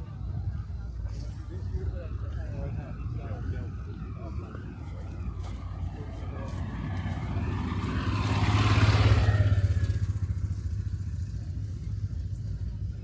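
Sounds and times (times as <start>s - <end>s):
car driving past: 4.5s - 11.7s.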